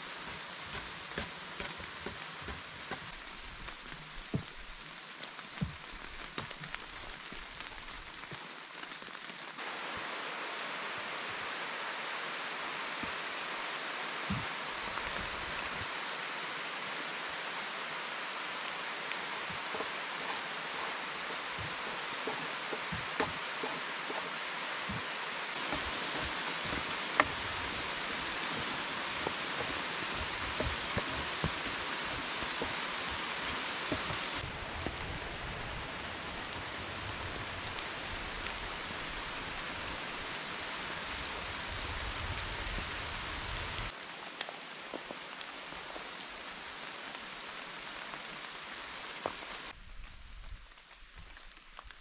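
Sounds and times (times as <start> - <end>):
rain pattering on leaves: 0.0 - 52.0.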